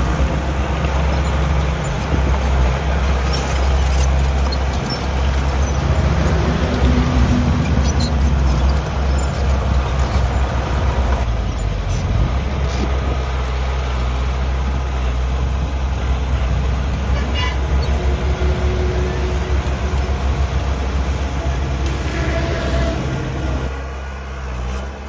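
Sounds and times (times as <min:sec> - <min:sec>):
heavy machinery diesel engine: 0:00.0 - 0:25.0
metallic clanks and squeaks: 0:02.9 - 0:12.1.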